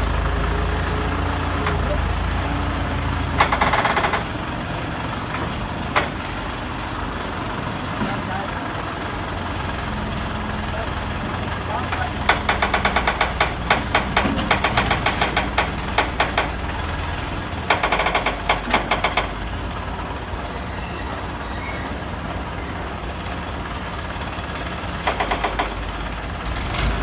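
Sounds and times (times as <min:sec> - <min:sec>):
heavy machinery humming: 0:00.0 - 0:27.0
rapid rhythmic knocking: 0:03.4 - 0:04.4, 0:12.0 - 0:16.8.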